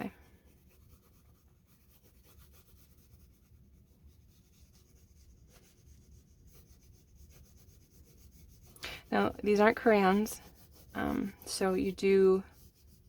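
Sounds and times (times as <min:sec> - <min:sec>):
oil pastel rubbing on paper: 0:00.0 - 0:13.0.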